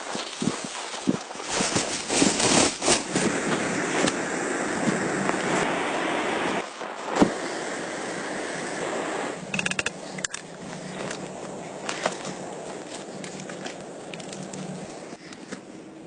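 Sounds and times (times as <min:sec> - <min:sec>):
rushing blizzard wind: 0:00.0 - 0:16.0
quick clicks: 0:09.5 - 0:10.5.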